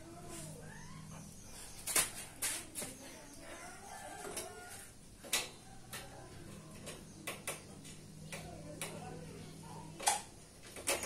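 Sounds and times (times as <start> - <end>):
faint animal calls: 0.5 - 1.7
sharp knocks and clicks: 6.8 - 9.1.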